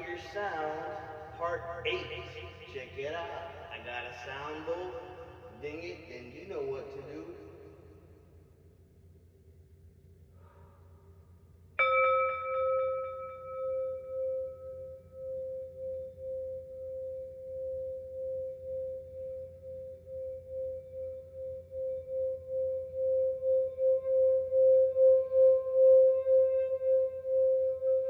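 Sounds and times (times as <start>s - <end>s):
singing bowl ringing: 11.8s - 28.0s.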